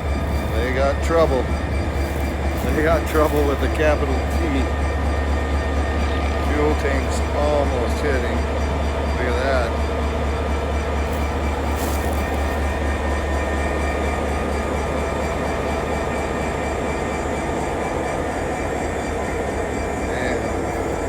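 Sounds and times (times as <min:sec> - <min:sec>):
diesel locomotive idling: 0:00.0 - 0:21.0.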